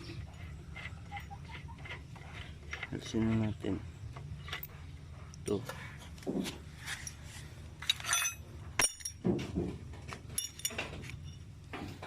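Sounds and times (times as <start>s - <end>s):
metal tools clinking: 6.9s - 9.3s, 10.3s - 11.5s.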